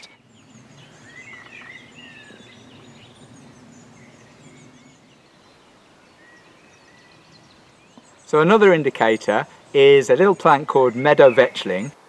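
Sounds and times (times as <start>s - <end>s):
faint birdsong: 0.0s - 12.0s
low background noise: 0.0s - 12.0s.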